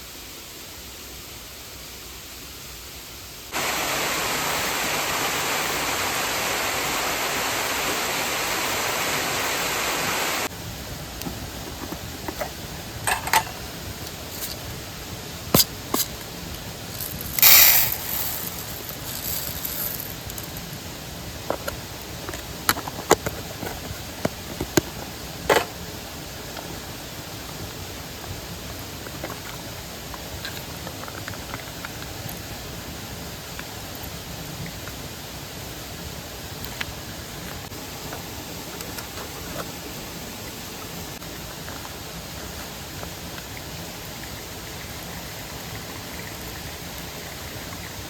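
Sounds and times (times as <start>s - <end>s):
short hissing burst: 3.5s - 10.5s, 16.9s - 20.6s
mountain stream rushing: 3.5s - 48.0s.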